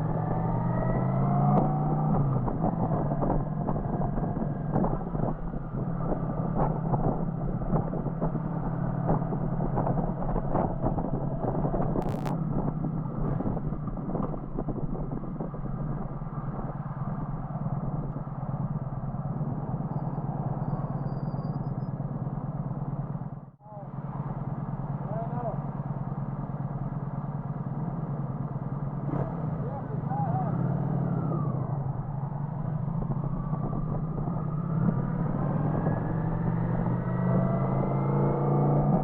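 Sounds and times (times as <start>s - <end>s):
motorcycle engine cruising: 0.0s - 39.0s
road and wind noise: 0.0s - 39.0s.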